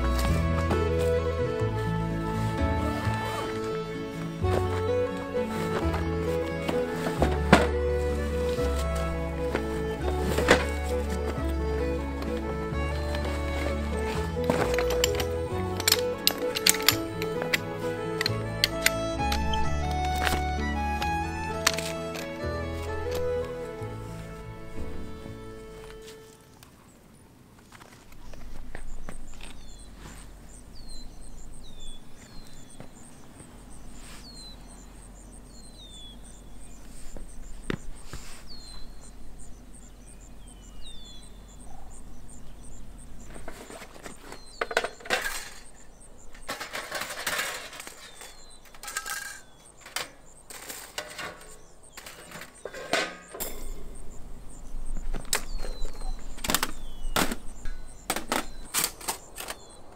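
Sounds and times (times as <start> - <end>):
camping gear being handled: 0.0 - 39.3, 40.9 - 59.9
small birds chirping: 0.0 - 59.9.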